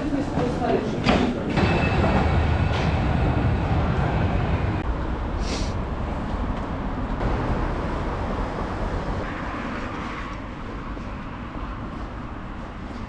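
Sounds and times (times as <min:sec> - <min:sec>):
vehicle rumbling past: 0:01.5 - 0:12.8.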